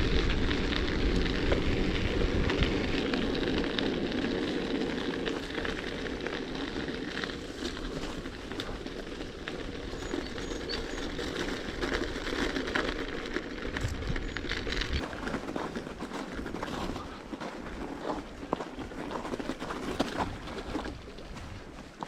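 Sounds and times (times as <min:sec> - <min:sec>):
bicycle tyres crunching on frozen snow: 0:00.0 - 0:22.0.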